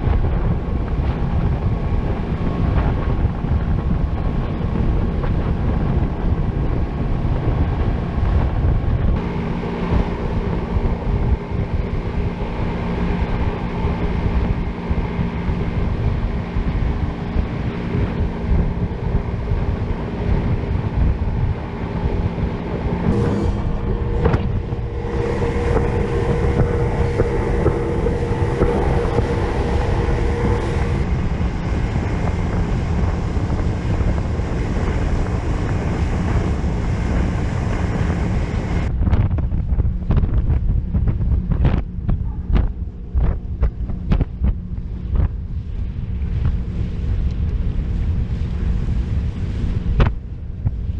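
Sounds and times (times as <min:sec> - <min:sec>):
engine running: 0:00.0 - 0:39.1
wind buffeting microphone: 0:00.0 - 0:50.9.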